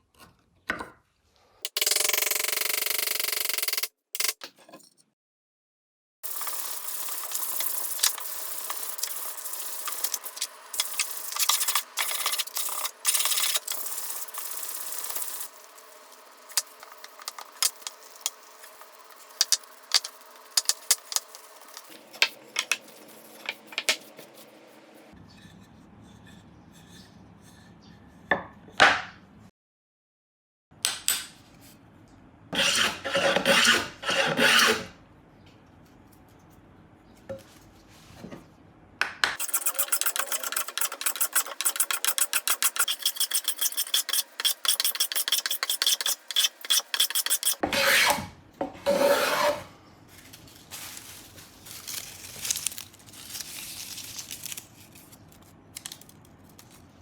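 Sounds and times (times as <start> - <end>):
hand tools rasping wood: 32.6 - 34.9, 39.4 - 48.3, 48.9 - 49.7.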